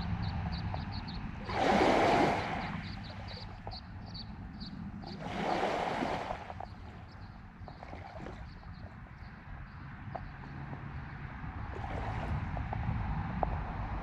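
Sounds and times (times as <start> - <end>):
bird chirping: 0.0 - 1.5, 2.4 - 5.2
low steady rumble: 0.0 - 14.0
wind-like noise rushes: 0.0 - 14.0.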